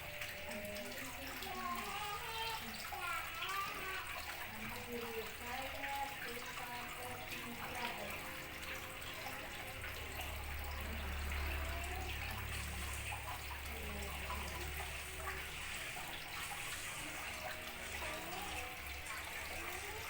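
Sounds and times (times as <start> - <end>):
trickling running water: 0.0 - 20.0.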